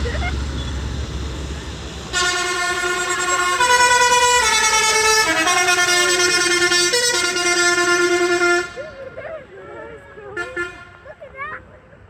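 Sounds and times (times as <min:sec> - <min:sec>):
musical vehicle horn: 0:02.0 - 0:09.2, 0:10.3 - 0:11.2.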